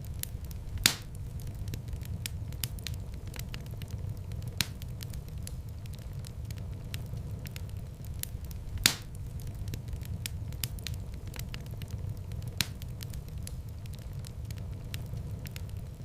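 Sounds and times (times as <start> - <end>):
wood fire crackling: 0.0 - 16.0
loud fire pop: 0.8 - 1.2, 8.8 - 9.2.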